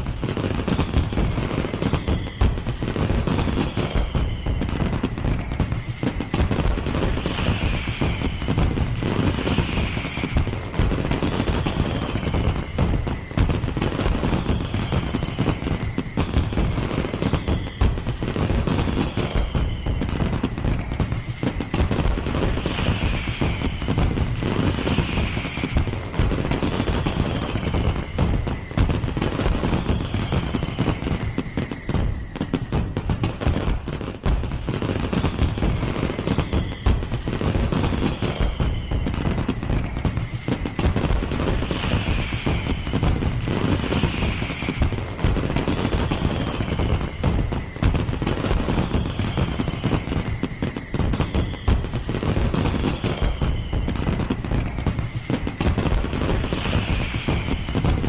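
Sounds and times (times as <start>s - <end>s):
falling firework whistle: 0.0s - 58.0s
fireworks cracking and banging: 0.0s - 58.0s.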